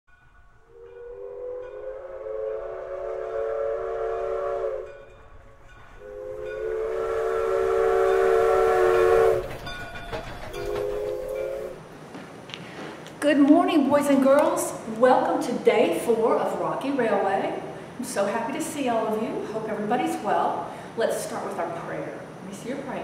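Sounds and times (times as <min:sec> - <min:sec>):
low rumble and hiss: 0:00.4 - 0:23.0
train whistle blasts: 0:00.6 - 0:05.4, 0:06.0 - 0:09.6, 0:10.5 - 0:11.8.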